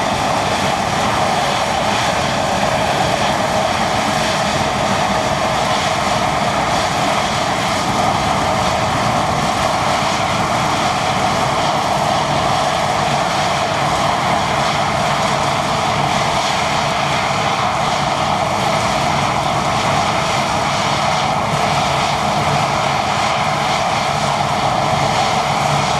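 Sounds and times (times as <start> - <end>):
combine harvester droning: 0.0 - 16.3.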